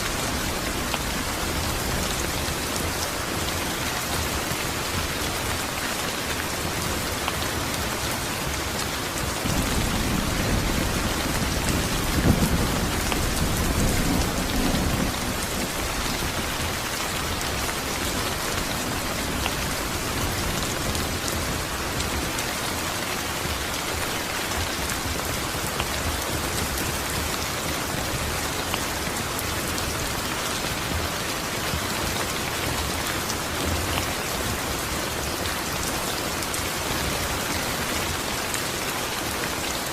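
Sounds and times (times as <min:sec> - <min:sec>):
steady rain falling: 0:00.0 - 0:39.9
thunder rolling: 0:09.4 - 0:16.0.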